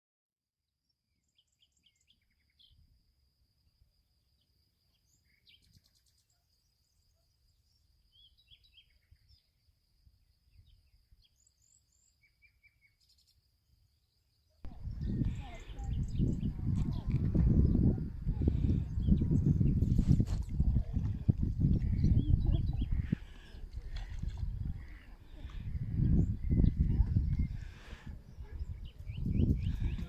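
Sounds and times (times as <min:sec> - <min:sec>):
birds chirping and trilling: 0:14.7 - 0:20.4, 0:21.0 - 0:30.0.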